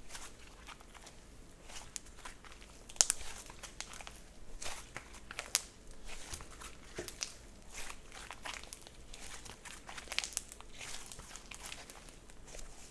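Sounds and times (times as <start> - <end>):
slime squished by hand: 0.1 - 12.9.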